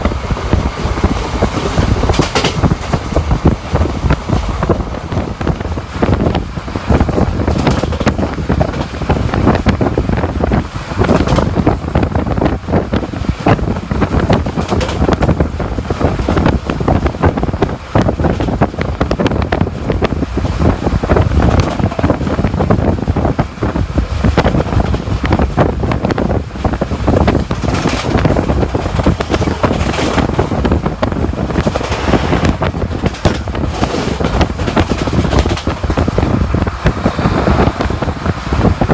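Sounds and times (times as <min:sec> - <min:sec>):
wheels rumbling on rails: 0:00.0 - 0:38.9
wind buffeting microphone: 0:00.0 - 0:38.9
short rail clacks: 0:01.0 - 0:03.3.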